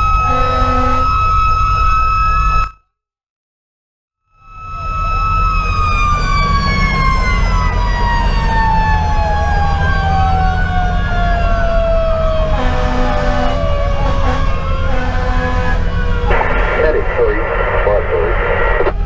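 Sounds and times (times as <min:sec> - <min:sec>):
electronic siren wailing: 0:00.0 - 0:02.8, 0:04.3 - 0:19.0
mechanical siren winding down: 0:00.0 - 0:02.8, 0:04.4 - 0:16.4
diesel engine rumble: 0:04.6 - 0:19.0.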